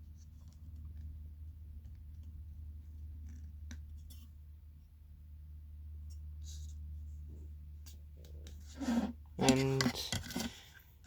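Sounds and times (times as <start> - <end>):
steady low hum: 0.0 - 11.0
light clicks and scrapes: 6.0 - 11.0.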